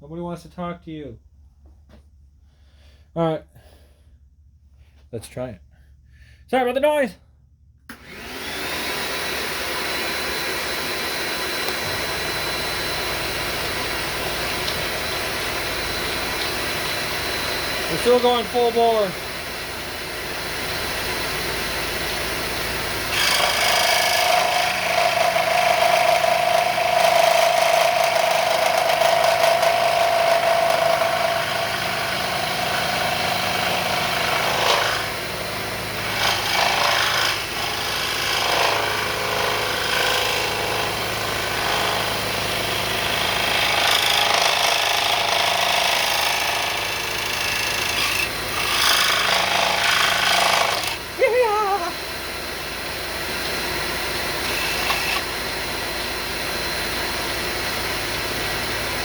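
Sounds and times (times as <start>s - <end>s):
scroll saw motor hum: 7.9s - 56.9s
shop vacuum running: 7.9s - 59.0s
saw blade rasping wood: 11.4s - 19.8s, 22.7s - 52.0s, 54.3s - 55.4s.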